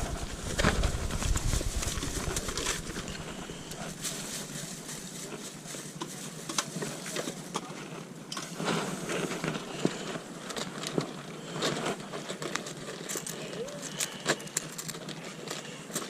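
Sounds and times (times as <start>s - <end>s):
background hubbub: 12.7s - 16.0s.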